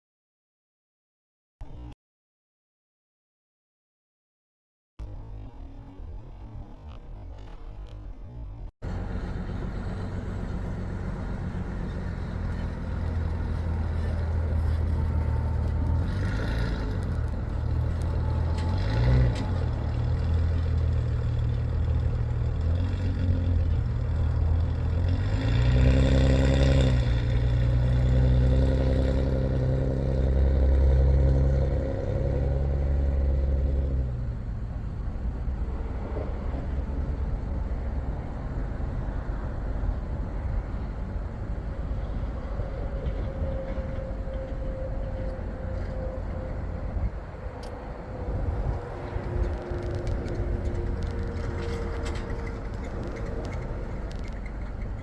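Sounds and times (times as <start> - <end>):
road noise: 1.6 - 2.0, 5.0 - 55.0
vehicle engine drone: 1.6 - 2.0, 5.0 - 55.0.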